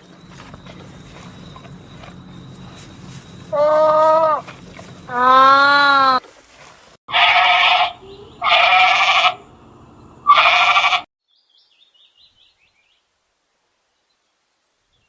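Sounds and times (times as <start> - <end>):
goat bleating: 3.5 - 6.2, 7.1 - 9.4, 10.3 - 11.0.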